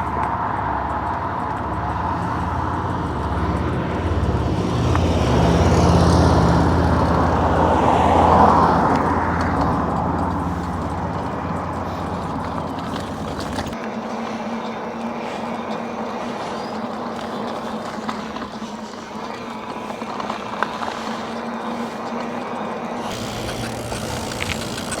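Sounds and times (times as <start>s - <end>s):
deep engine drone: 0.0s - 13.8s, 23.0s - 25.0s
rushing wind and road noise: 0.0s - 25.0s
steady vehicle hum: 0.0s - 25.0s.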